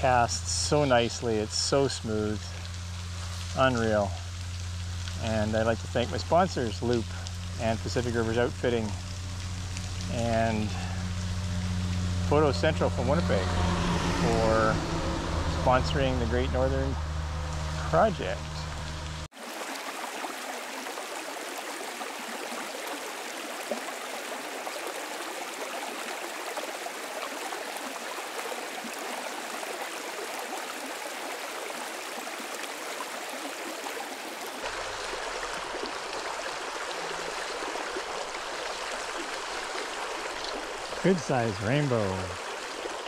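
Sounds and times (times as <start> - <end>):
faint low rumble: 0.0 - 19.3
river water rushing: 0.0 - 43.0.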